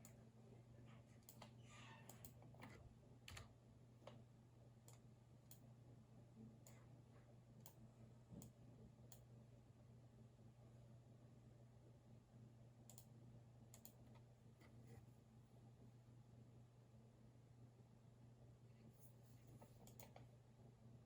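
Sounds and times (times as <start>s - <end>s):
keyboard and mouse clicks: 1.2s - 4.2s, 13.7s - 14.8s, 19.7s - 20.3s.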